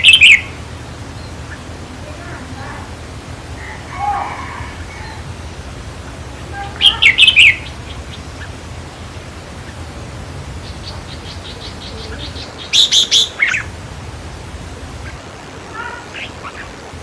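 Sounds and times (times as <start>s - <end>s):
bird calling: 0.0s - 17.0s.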